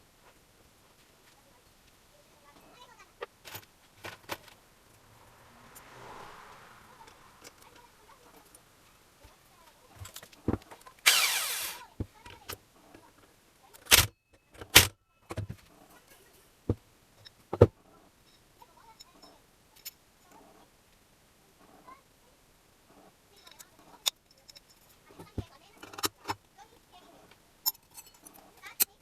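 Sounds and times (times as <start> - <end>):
metal tools knocking and clanking: 23.4 - 26.4, 27.6 - 29.0.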